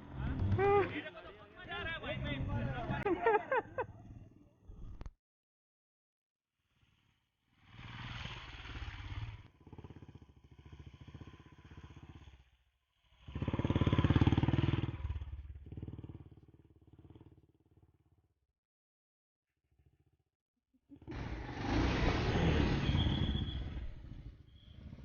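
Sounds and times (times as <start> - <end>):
motorcycle engines running: 0.0 - 4.1, 7.6 - 18.2, 21.0 - 25.0.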